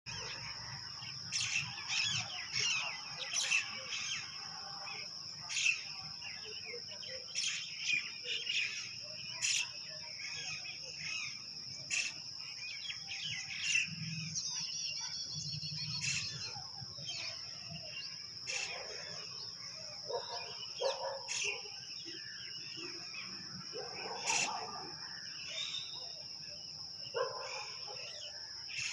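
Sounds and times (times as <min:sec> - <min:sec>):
birds chirping and calling: 0:00.1 - 0:28.9.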